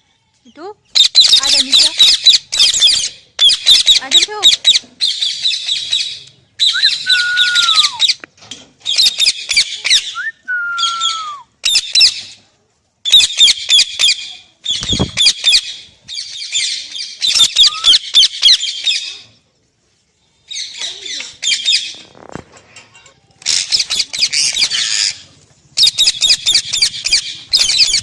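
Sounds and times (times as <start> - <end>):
parrot screeching: 6.6 - 8.1.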